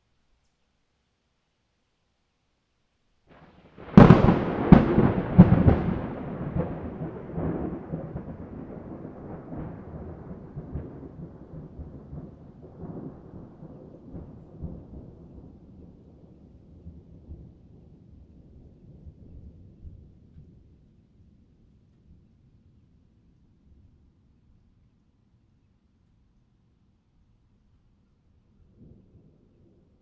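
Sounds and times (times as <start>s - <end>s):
thunder rumble: 3.3s - 20.2s
thunder cracks: 3.4s - 15.6s.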